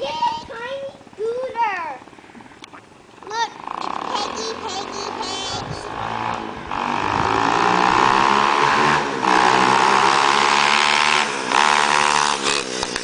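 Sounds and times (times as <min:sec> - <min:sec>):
mini bike engine revving: 0:03.2 - 0:13.0.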